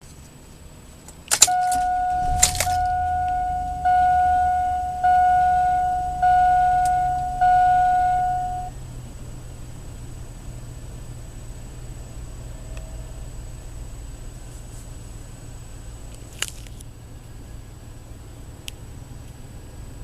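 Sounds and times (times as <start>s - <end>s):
sharp clicks: 1.3s - 2.8s
dashboard warning chime dinging: 1.4s - 8.7s
low rumble: 1.4s - 8.7s.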